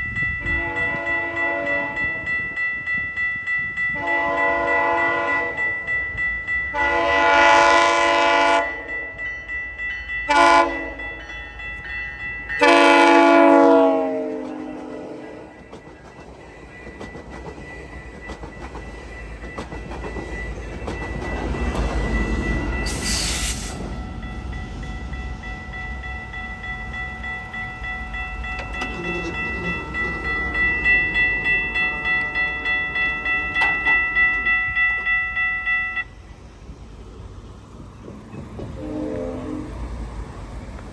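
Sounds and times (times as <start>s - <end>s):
crossing warning bell ringing: 0.0s - 40.9s
train wheels rumbling on rails: 9.9s - 40.9s.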